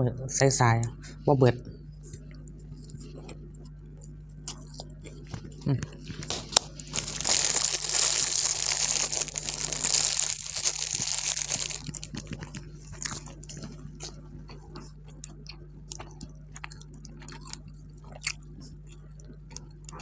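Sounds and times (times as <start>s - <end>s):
crunchy chewing: 2.1s - 20.0s
food wrapping crinkling: 6.2s - 13.2s.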